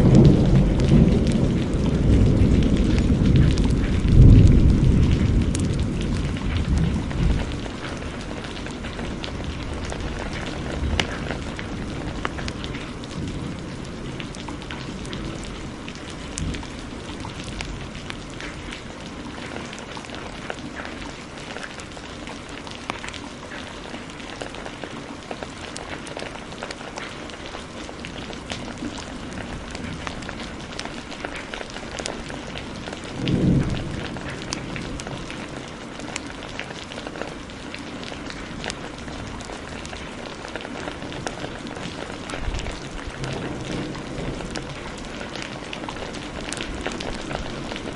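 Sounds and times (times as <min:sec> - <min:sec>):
deep thunder rumble: 0:00.0 - 0:20.5, 0:32.1 - 0:36.1, 0:41.2 - 0:47.9
heavy rain: 0:00.0 - 0:47.9.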